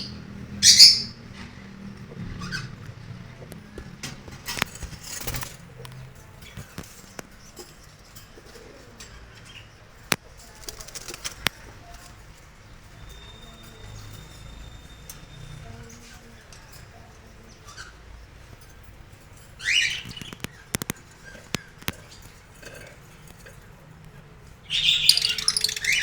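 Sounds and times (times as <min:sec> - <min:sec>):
budgerigar chirping: 0:00.0 - 0:01.1, 0:24.7 - 0:26.0.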